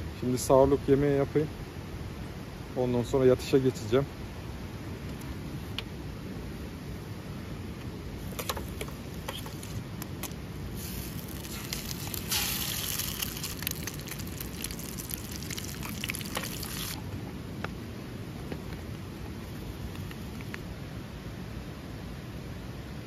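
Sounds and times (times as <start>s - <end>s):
bright hiss with crackles: 7.3s - 20.7s
stream rushing: 9.0s - 18.2s.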